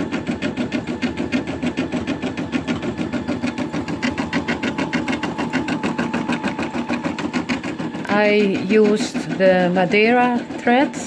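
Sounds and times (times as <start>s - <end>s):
embroidery machine stitching: 0.0s - 11.0s.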